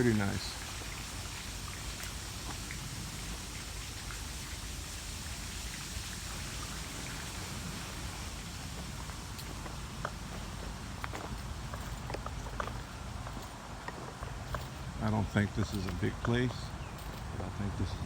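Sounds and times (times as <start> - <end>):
steady outdoor hiss: 0.0 - 18.0.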